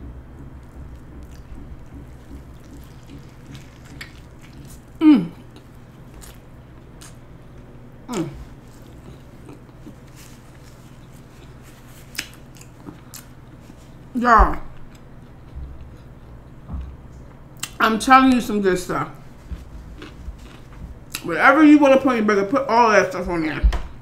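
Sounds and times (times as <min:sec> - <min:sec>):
person chewing: 0:00.3 - 0:14.1, 0:14.7 - 0:16.9, 0:19.2 - 0:21.3
wet mouth clicks: 0:00.5 - 0:06.4.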